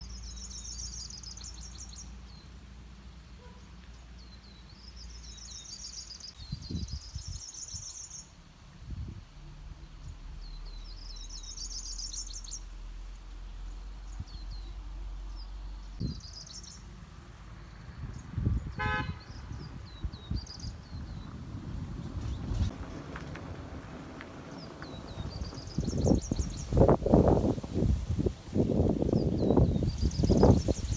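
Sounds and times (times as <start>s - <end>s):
low forest rumble: 4.3s - 30.9s
songbird trilling: 10.6s - 12.6s.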